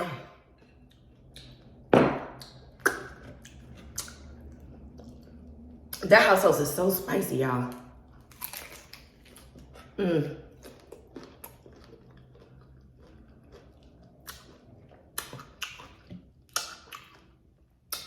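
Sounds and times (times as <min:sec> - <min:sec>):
crunchy chewing: 0:08.1 - 0:18.0.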